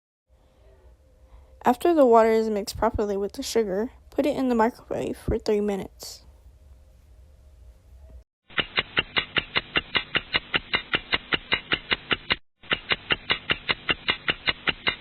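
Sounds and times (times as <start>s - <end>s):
low steady hum: 0.3s - 8.2s
rapid sharp clicks: 8.5s - 15.0s.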